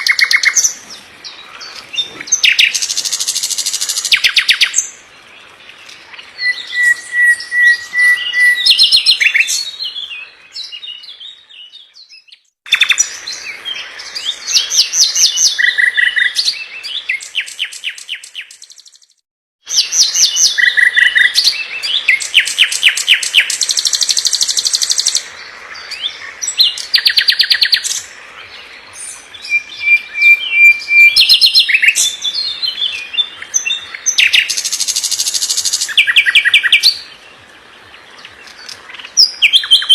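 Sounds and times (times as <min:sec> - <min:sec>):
nightingale song: 0:00.0 - 0:39.9.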